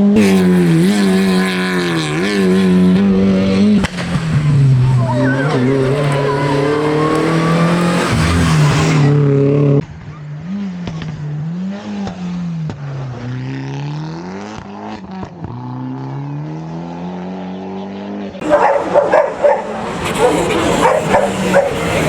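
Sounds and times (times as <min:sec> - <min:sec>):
distant rally car engine revving: 0:00.0 - 0:22.0
rally car engine at full throttle: 0:00.0 - 0:22.0.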